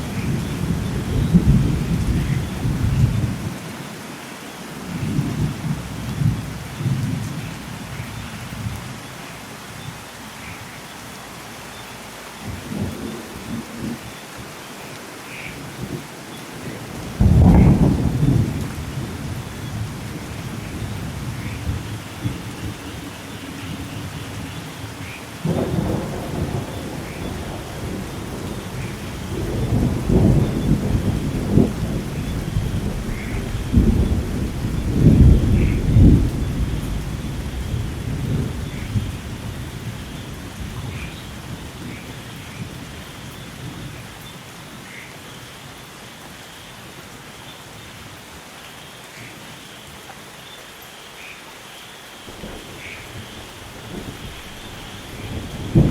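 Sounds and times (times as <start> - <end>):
thunder claps and rumbles: 0.0 - 3.7, 4.8 - 8.9, 16.6 - 44.1, 52.3 - 55.9
steady rain: 0.0 - 55.9.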